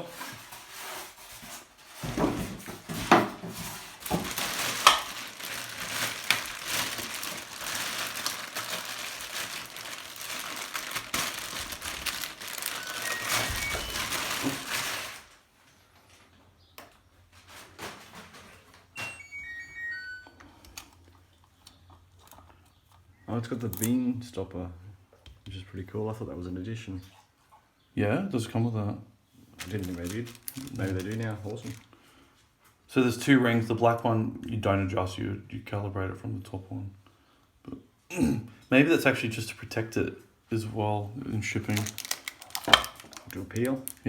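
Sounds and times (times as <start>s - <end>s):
packaging rustling: 0.4s - 15.5s, 29.5s - 32.0s, 41.4s - 44.0s
short high beeps: 12.8s - 14.1s, 19.0s - 20.4s.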